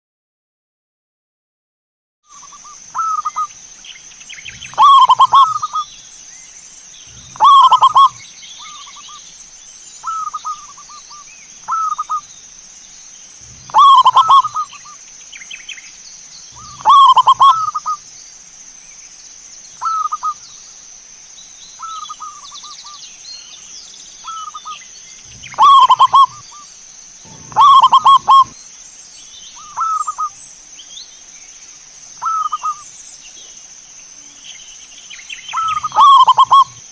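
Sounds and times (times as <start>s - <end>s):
steady high-pitched whine: 2.3s - 36.9s
doves cooing: 4.3s - 5.9s, 7.0s - 9.2s, 13.4s - 15.0s, 16.6s - 18.0s, 24.3s - 26.6s, 27.2s - 28.6s, 29.6s - 30.4s, 35.5s - 36.9s.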